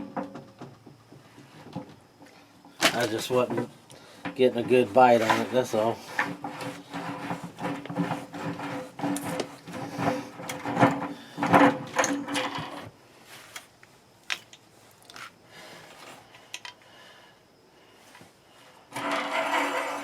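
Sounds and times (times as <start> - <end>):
wrench grating on metal: 18.9 - 20.0.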